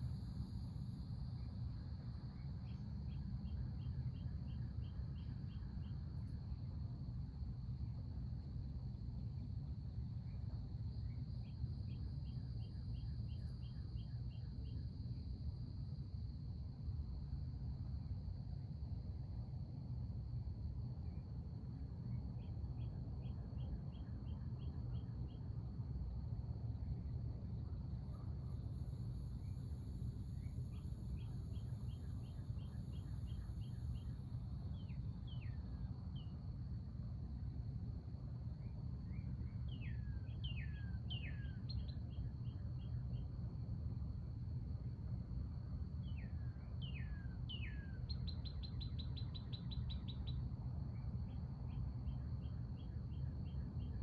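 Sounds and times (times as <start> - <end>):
low background rumble: 0.0 - 54.0
high insect drone: 21.0 - 54.0.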